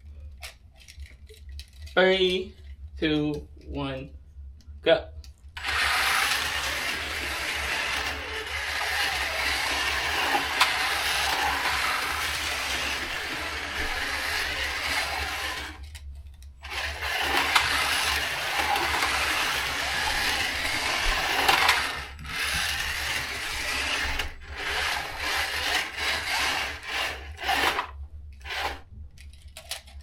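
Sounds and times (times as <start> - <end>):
slot cars whirring: 5.6 - 28.9.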